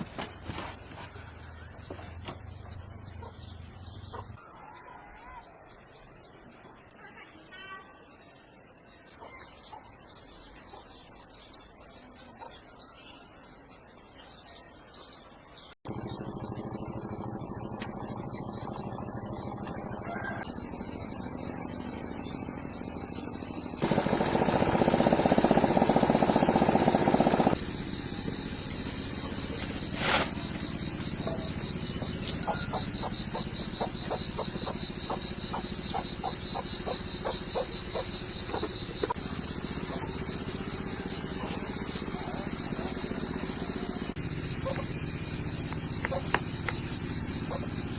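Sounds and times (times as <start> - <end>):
insects chirping: 0.0 - 47.9
mechanical hum: 15.9 - 47.9.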